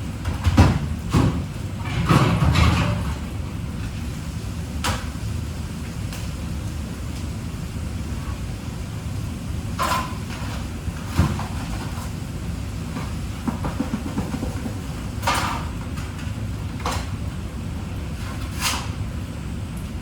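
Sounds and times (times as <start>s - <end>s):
knock: 13.4s - 14.8s.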